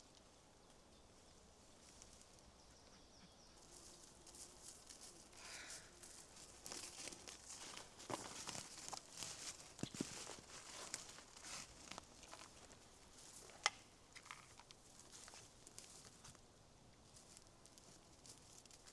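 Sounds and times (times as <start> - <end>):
rustling and crinkling: 3.6 - 16.4, 17.0 - 18.9.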